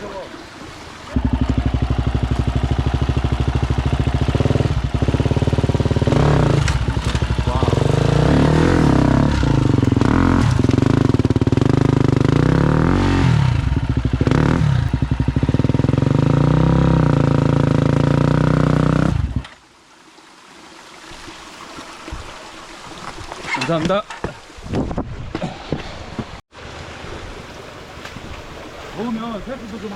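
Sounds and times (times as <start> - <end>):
motorcycle engine revving: 1.1 - 19.6.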